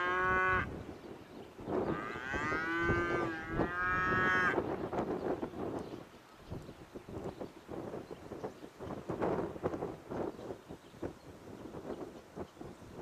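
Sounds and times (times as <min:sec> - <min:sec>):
cow mooing: 0:00.0 - 0:00.7, 0:01.9 - 0:04.6.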